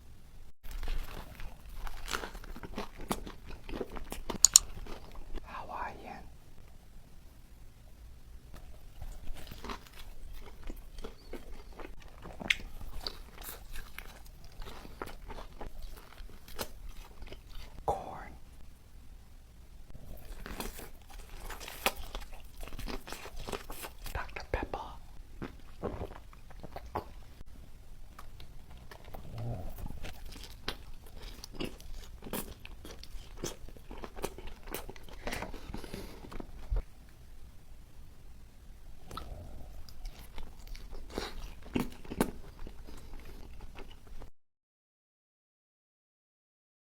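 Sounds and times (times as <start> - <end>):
person chewing crunchy food: 0.6 - 5.9, 8.5 - 18.3, 19.9 - 37.0, 39.0 - 44.3.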